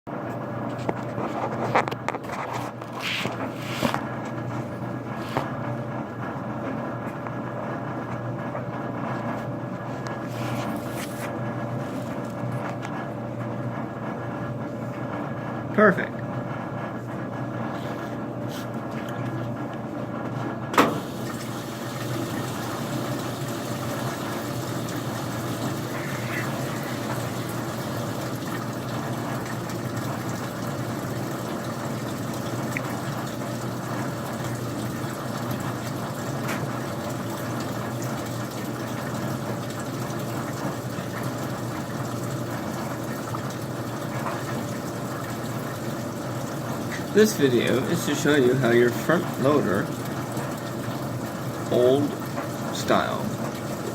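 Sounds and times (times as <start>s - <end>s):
washing machine hum: 0.1s - 53.9s
washing machine click: 20.7s - 21.5s
water filling hiss: 20.8s - 37.6s, 41.4s - 53.9s.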